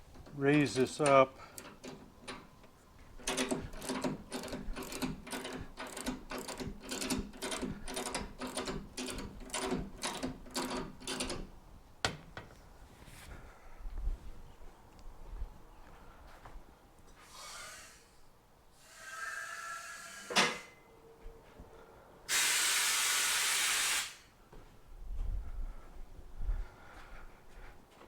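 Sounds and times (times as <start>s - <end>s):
metallic ratchet clacks: 0.2s - 2.5s, 3.2s - 11.5s.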